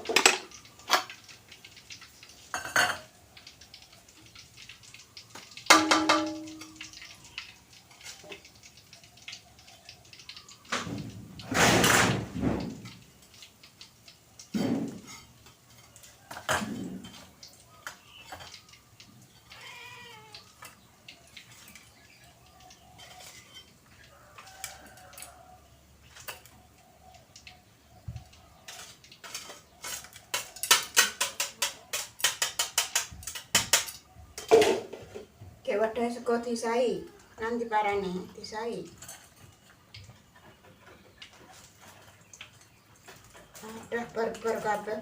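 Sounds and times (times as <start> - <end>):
dishes and utensils clattering: 0.0 - 1.3, 2.0 - 3.2, 5.3 - 7.1, 10.7 - 13.4, 14.4 - 25.4, 26.0 - 27.2, 28.0 - 35.4, 38.9 - 45.0
cat meowing: 19.4 - 20.6.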